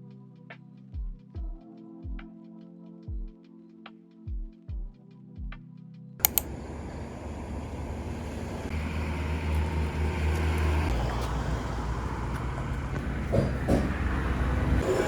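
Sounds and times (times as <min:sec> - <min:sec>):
vehicle road noise: 0:06.2 - 0:15.0.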